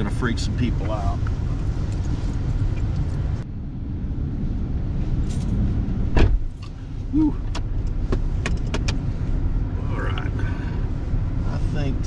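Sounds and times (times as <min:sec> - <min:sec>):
loud thump: 0:06.1 - 0:06.5.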